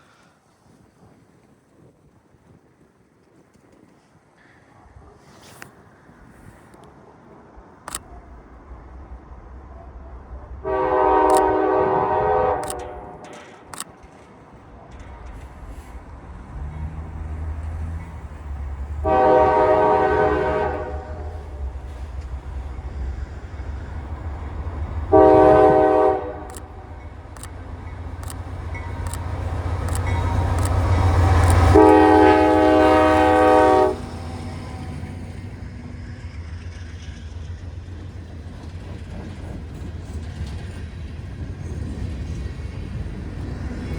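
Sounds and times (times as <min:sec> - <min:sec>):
train cars rolling by: 0:00.0 - 0:43.9
diesel locomotive rumble: 0:06.0 - 0:43.9
locomotive air horn: 0:10.6 - 0:13.5, 0:19.0 - 0:22.2, 0:25.1 - 0:26.8, 0:29.9 - 0:35.0.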